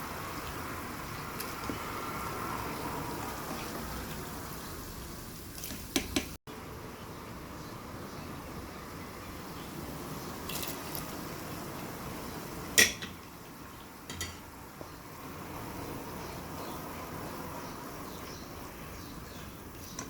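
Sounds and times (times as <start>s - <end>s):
utensil clinking against cookware: 12.8s - 13.2s, 14.1s - 14.5s.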